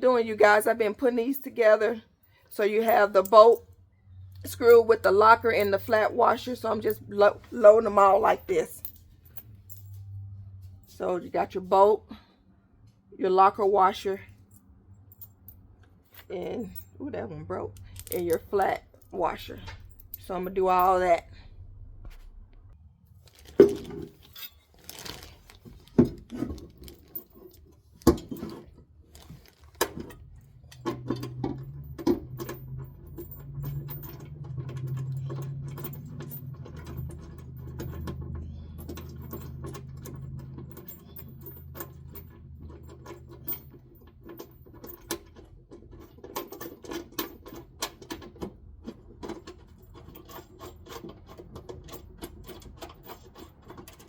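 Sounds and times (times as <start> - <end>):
metal hardware clinking: 4.4 - 10.3, 14.4 - 17.0, 17.7 - 21.2, 23.5 - 48.4
low hum: 14.3 - 24.6.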